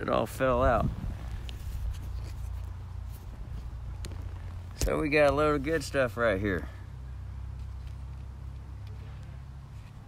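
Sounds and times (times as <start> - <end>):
rustling handling noise: 0.8 - 5.9.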